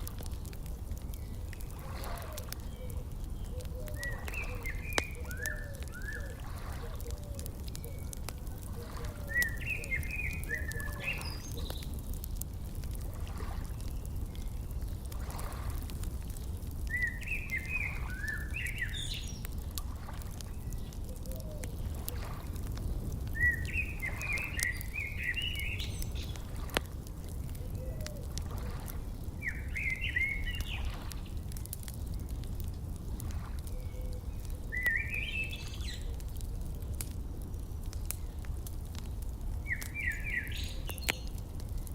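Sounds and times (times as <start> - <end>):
fire crackling: 0.0 - 41.9
songbird warbling: 1.8 - 11.9, 23.4 - 26.5, 29.4 - 31.0.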